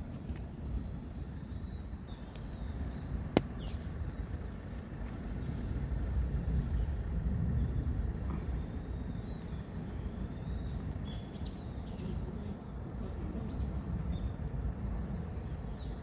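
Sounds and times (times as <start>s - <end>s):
distant road traffic rumble: 0.0s - 16.0s.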